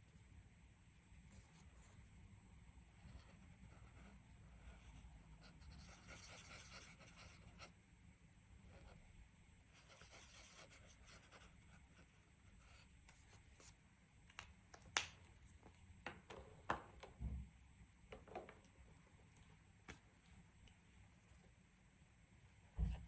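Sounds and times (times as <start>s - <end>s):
coloring tool scratching paper: 3.0s - 7.7s
soft low thump: 22.8s - 23.0s.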